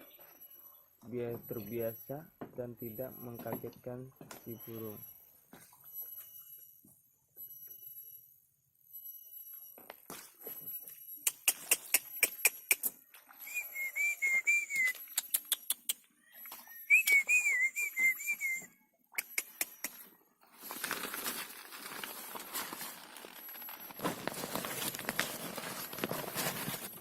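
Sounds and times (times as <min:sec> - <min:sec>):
sharp clicks: 0:11.3 - 0:13.0, 0:19.2 - 0:20.0
person whistling warbling phrase: 0:13.5 - 0:14.9, 0:16.9 - 0:18.7.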